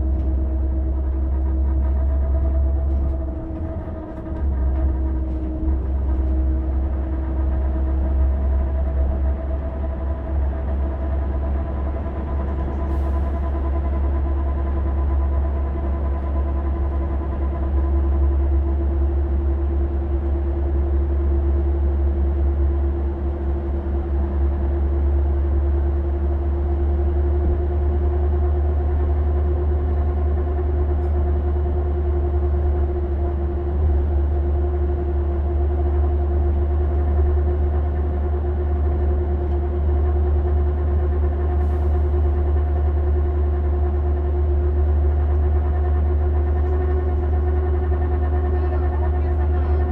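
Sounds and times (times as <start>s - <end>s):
deep engine rumble: 0.0s - 49.9s
continuous whine: 43.9s - 49.9s.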